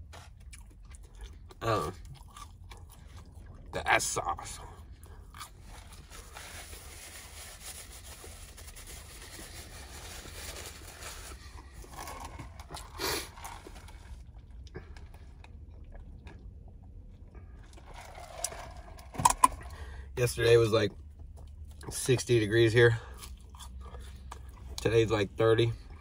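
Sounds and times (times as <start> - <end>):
person chewing: 0.0 - 6.4, 11.2 - 20.0, 23.0 - 24.9.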